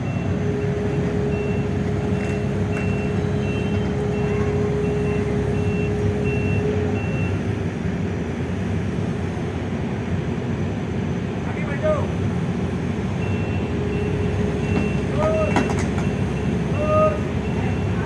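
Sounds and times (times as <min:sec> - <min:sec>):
diesel engine running: 0:00.0 - 0:18.0
backup alarm beeping: 0:00.1 - 0:07.4, 0:13.2 - 0:18.0.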